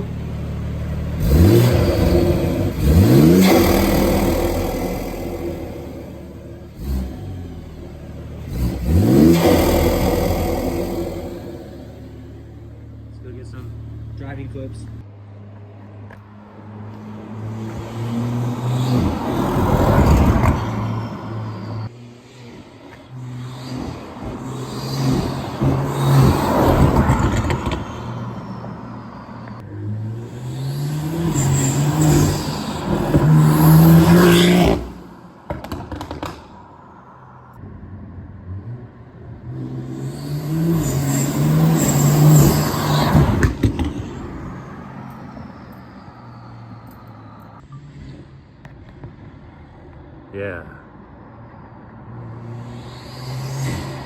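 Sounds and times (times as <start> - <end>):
car engine accelerating hard: 0.0 - 15.0, 29.5 - 36.4, 37.6 - 48.1.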